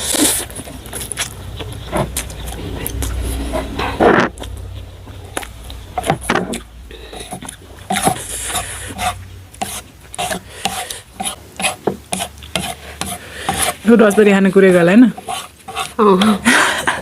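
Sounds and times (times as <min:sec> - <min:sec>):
chewing: 0:00.0 - 0:05.8
chopsticks scraping a bowl: 0:06.0 - 0:17.0.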